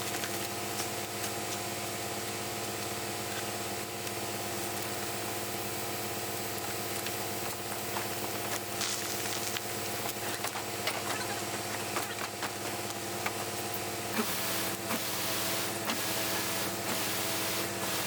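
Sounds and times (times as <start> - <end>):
truck engine humming: 0.0 - 18.0
hiss: 14.2 - 18.0.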